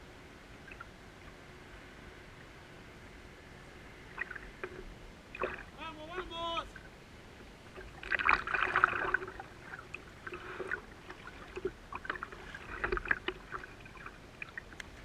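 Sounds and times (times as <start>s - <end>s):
water splashing around kayak: 3.6s - 15.0s.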